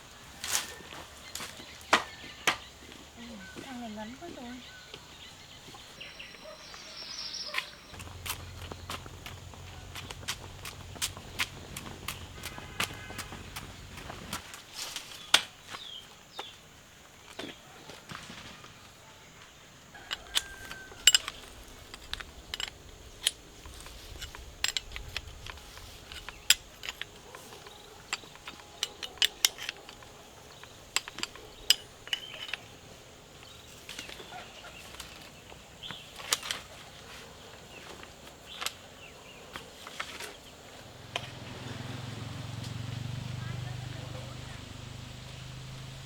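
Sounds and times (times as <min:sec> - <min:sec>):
low hum: 0:07.8 - 0:14.4.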